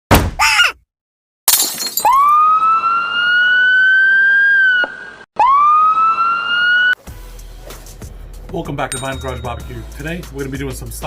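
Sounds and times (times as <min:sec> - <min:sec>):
rising siren tone: 0:02.4 - 0:07.0.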